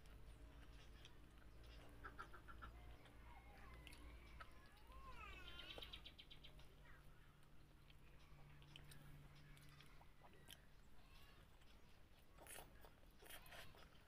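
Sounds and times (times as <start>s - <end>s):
faint bird calls: 0.6s - 7.3s.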